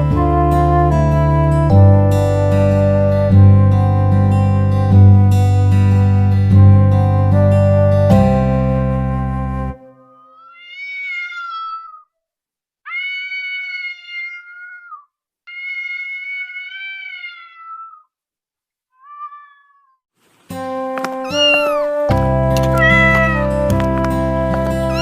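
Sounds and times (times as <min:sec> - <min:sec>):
acoustic guitar music: 0:00.0 - 0:10.1, 0:20.4 - 0:25.0
cat meowing: 0:10.0 - 0:12.1, 0:12.9 - 0:18.2, 0:19.0 - 0:20.0, 0:21.2 - 0:22.0, 0:22.6 - 0:23.6, 0:24.8 - 0:25.0.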